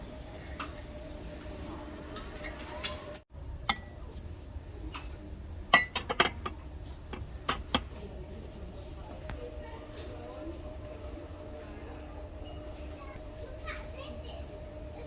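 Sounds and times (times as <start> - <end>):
dishes clinking: 2.1 - 4.2, 5.7 - 8.7.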